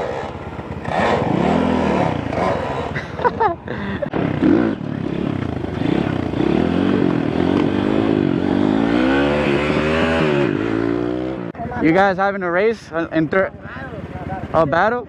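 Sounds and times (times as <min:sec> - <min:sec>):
dirt bike engine revving: 0:00.0 - 0:11.6.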